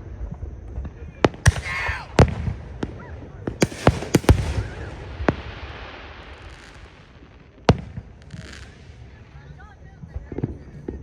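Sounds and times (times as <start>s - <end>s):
fireworks bangs: 1.2s - 10.4s
fireworks crackle: 1.2s - 10.6s.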